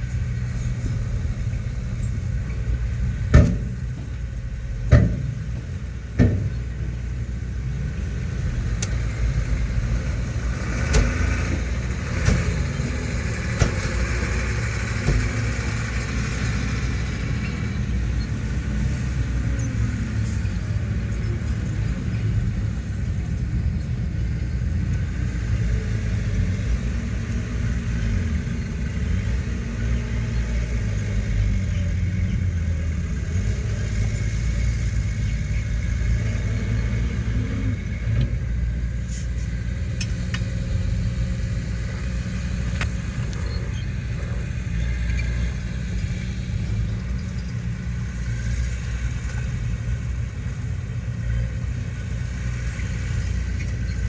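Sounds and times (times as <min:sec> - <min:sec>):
diesel engine rumbling: 0:00.0 - 0:54.0.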